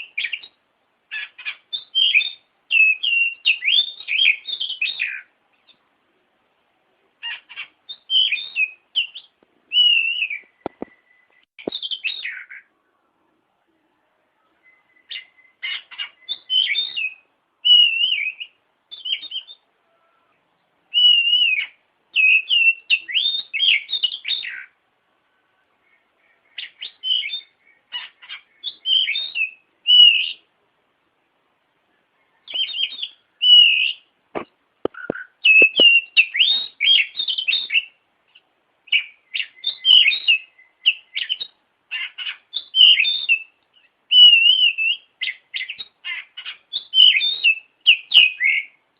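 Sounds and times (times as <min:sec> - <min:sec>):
songbird whistling and chirping: 0:00.0 - 0:05.8, 0:07.2 - 0:13.0, 0:14.4 - 0:30.5, 0:31.9 - 0:34.1, 0:34.9 - 0:48.8
sharp clicks: 0:34.4 - 0:36.0.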